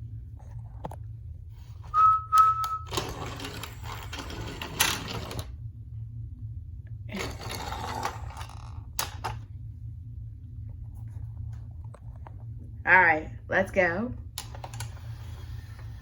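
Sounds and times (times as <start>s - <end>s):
low hum: 0.0s - 16.0s
short high whistle-like tone: 1.9s - 3.0s
toy vehicles rattling and scraping: 2.9s - 5.5s, 7.1s - 9.2s.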